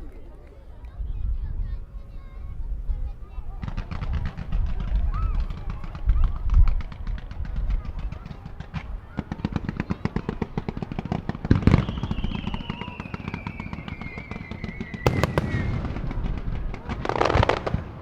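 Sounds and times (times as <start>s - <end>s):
fireworks bangs: 6.8s - 18.0s
fireworks crackling: 6.8s - 18.0s
falling firework whistle: 11.6s - 16.6s.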